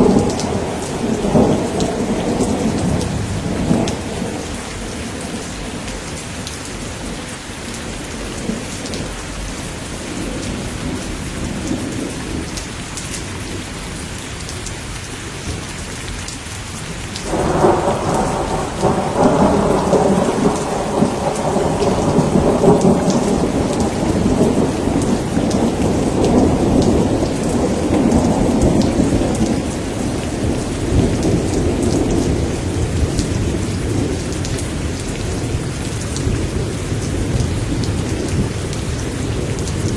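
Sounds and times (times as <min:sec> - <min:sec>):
thunder rumble: 0:00.0 - 0:12.6, 0:17.2 - 0:39.9
steady rain: 0:00.0 - 0:39.9.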